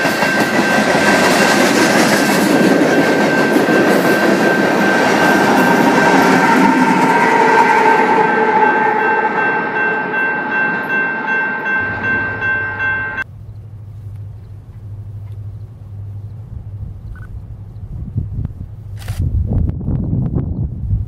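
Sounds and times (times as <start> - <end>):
train wheels clattering: 0.0 - 7.5
locomotive engine drone: 0.0 - 19.0.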